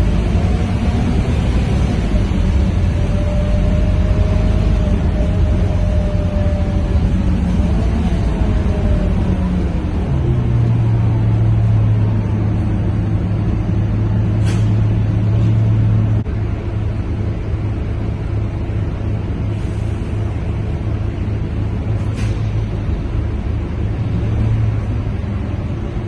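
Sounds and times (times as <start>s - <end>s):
bus engine accelerating: 0.0s - 26.0s
steady low drone: 0.0s - 26.0s.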